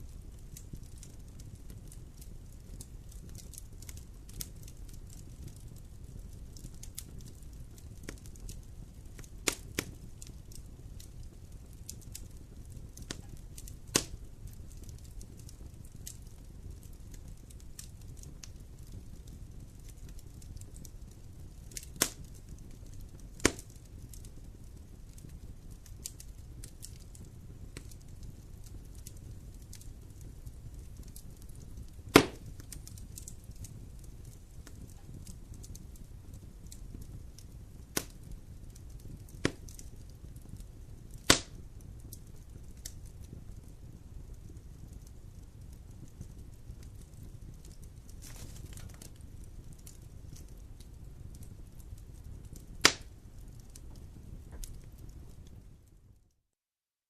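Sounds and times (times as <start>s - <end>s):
campfire rumbling and crackling: 0.0s - 56.4s
loud sharp fire pops: 9.1s - 38.4s, 39.0s - 43.4s, 45.9s - 50.6s, 51.4s - 55.6s.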